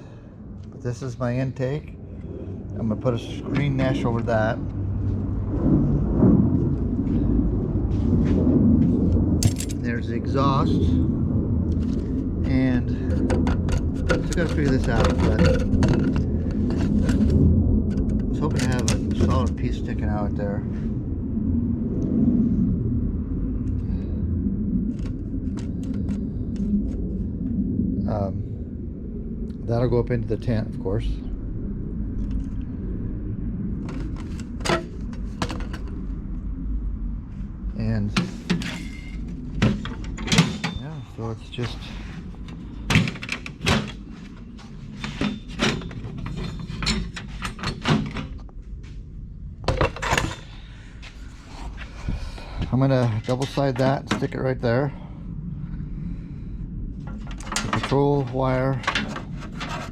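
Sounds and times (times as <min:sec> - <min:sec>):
steady low rumble: 0:00.0 - 0:59.9
parts knocking and clunking: 0:12.4 - 0:17.4, 0:33.9 - 0:36.0, 0:38.1 - 0:40.9, 0:42.4 - 0:48.5, 0:49.6 - 0:50.5, 0:57.1 - 0:59.9.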